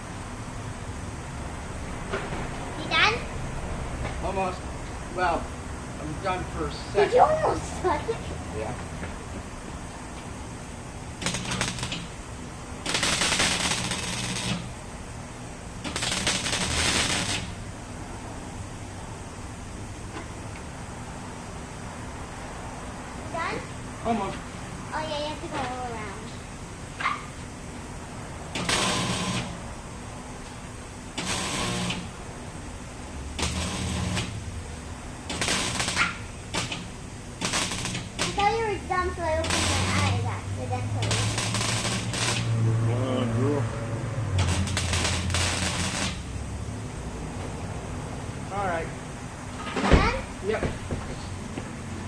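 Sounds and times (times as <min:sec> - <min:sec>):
low electrical hum: 0:00.0 - 0:52.0
welding arc crackling: 0:10.9 - 0:15.0, 0:15.6 - 0:17.9, 0:28.5 - 0:29.8, 0:30.4 - 0:32.3, 0:33.2 - 0:42.7, 0:44.2 - 0:47.0.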